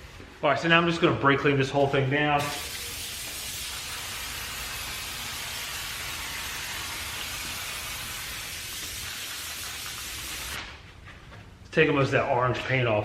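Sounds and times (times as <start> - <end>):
aerosol can spraying: 2.4 - 10.6.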